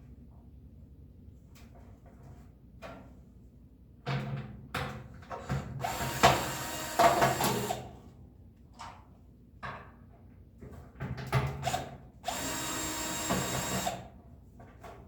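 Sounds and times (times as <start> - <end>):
power drill driving screws: 5.8 - 7.9, 11.6 - 14.1.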